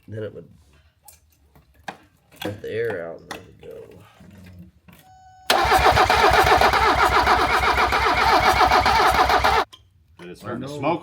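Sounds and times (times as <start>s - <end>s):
diesel engine starter cranking: 5.5s - 9.7s.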